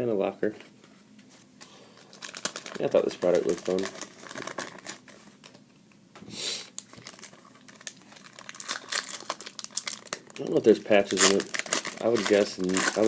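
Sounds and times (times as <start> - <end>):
card pack wrapper crinkling: 2.0 - 5.6, 6.7 - 13.0
wrapper tearing rustle: 2.0 - 5.6, 6.7 - 13.0.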